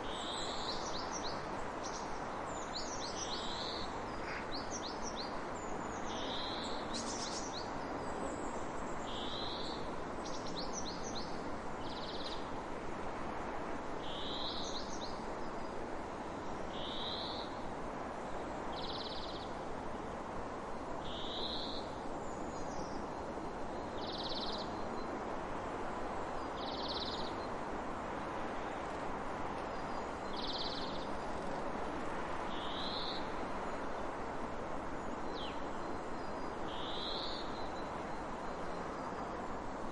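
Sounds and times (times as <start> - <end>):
steady rushing background noise: 24.7 - 36.7.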